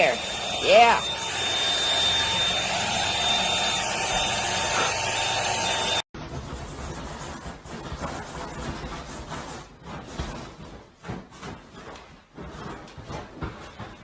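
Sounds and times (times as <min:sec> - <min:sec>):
vacuum cleaner whining: 0:00.0 - 0:06.1
rubbing sound: 0:06.2 - 0:14.0.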